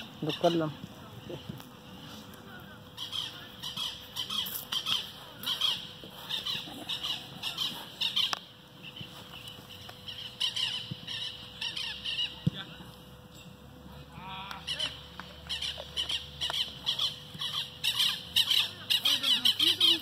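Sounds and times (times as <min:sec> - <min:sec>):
bird squawking: 0:03.0 - 0:09.0, 0:10.1 - 0:12.4, 0:14.6 - 0:20.0.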